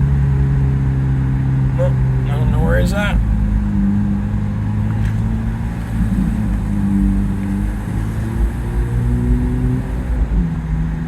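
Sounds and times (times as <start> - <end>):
car engine droning: 0.0 - 11.0
low road rumble: 0.0 - 11.0.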